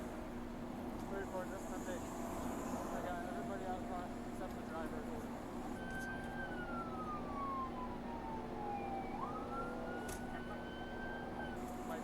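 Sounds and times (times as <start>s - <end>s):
emergency siren wailing: 2.4s - 12.0s.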